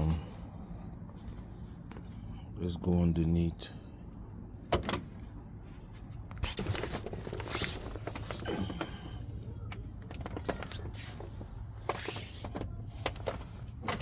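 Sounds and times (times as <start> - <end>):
scrapes and rustles: 5.8 - 9.2, 9.9 - 14.0.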